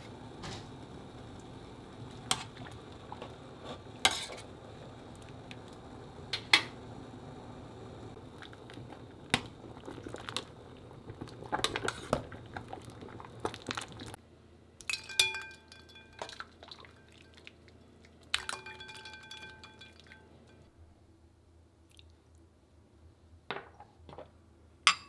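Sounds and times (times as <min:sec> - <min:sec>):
metal utensil scraping in pot: 0:03.6 - 0:04.5
clinks on glass bowl: 0:14.8 - 0:16.3, 0:18.4 - 0:20.7.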